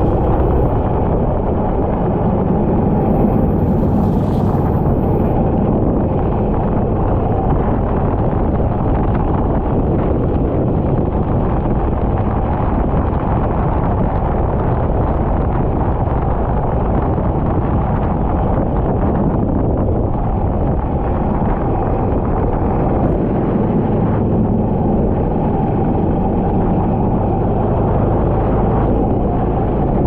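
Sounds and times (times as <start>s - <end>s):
kart engine running: 0.0s - 12.1s
wind buffeting microphone: 0.0s - 30.0s.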